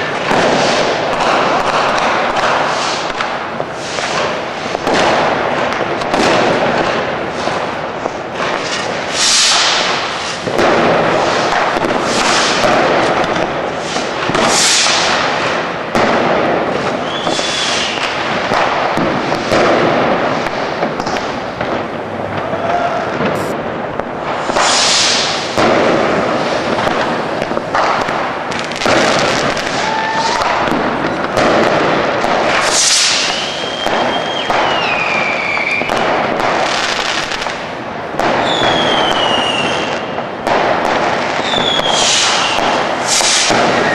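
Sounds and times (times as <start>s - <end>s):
firecracker cracks and bangs: 0.0s - 43.9s
hissing rockets: 0.0s - 43.9s
descending firework whistles: 8.7s - 12.7s, 13.7s - 15.5s, 16.7s - 19.6s, 24.3s - 25.6s, 28.6s - 36.1s, 38.3s - 40.2s, 41.3s - 43.9s.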